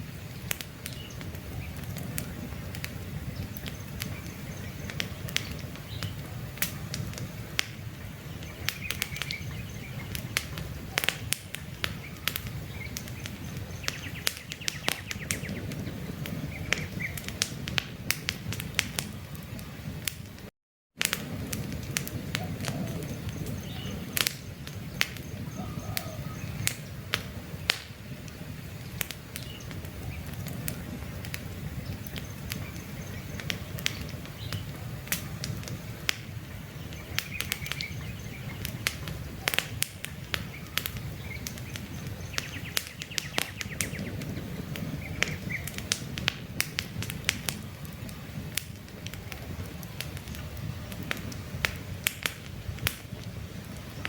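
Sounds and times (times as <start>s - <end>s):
campfire logs crackling and popping: 0.0s - 54.0s
faint bird chirps: 24.9s - 26.7s.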